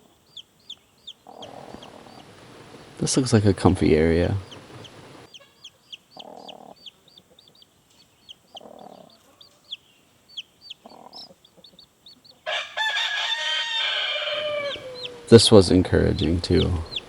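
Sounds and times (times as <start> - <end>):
hen clucking softly: 0.0 - 2.3, 4.4 - 12.7, 14.1 - 17.0
chicks peeping: 0.0 - 17.0
loud drawn-out chicken call: 12.4 - 15.4.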